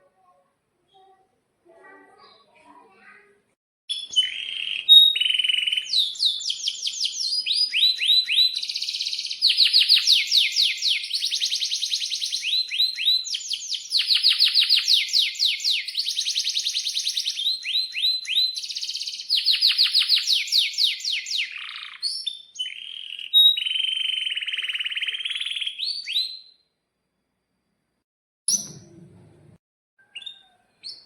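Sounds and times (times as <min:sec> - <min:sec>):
canary singing: 0:03.9 - 0:26.6.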